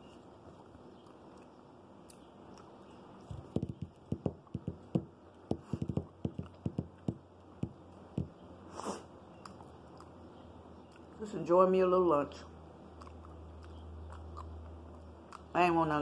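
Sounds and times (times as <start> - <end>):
chewing sandwich mouth smacks: 12.9 - 15.5.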